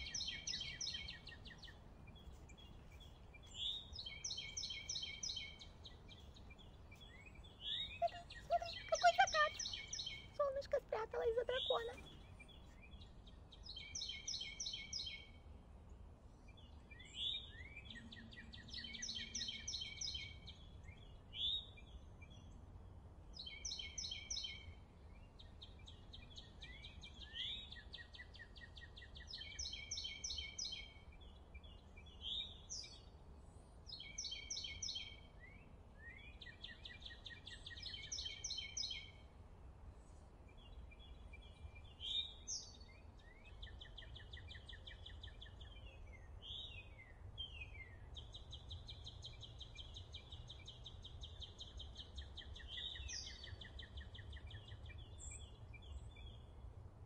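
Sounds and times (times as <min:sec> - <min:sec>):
songbirds trilling: 0:00.0 - 0:15.2.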